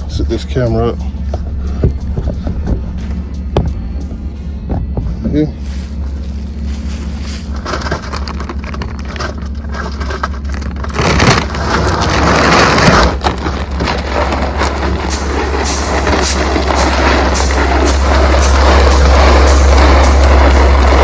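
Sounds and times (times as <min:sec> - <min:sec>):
corn grain crunching and rattling: 0:00.0 - 0:03.4, 0:05.1 - 0:21.0
steady low hum: 0:00.0 - 0:21.0
rush of grain pouring: 0:05.7 - 0:21.0.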